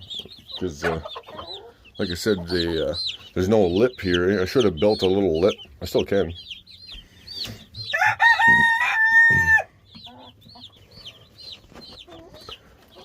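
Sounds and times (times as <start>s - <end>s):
chicks peeping: 0.0s - 13.0s
rooster crowing: 7.9s - 9.7s.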